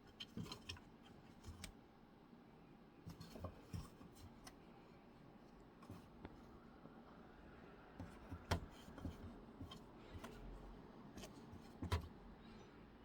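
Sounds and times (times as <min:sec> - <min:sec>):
faint taps and rustles: 0:00.0 - 0:01.8, 0:03.1 - 0:04.7, 0:05.5 - 0:06.6, 0:08.0 - 0:12.2.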